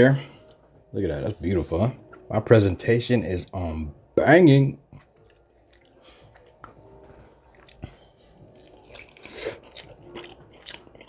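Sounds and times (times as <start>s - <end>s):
biting and chewing chicken: 5.0s - 11.0s.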